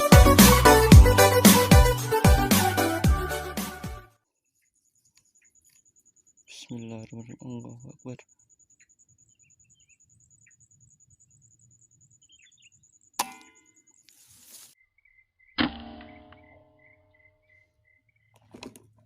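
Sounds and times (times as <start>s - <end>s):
faint bird chirps: 4.4s - 18.5s.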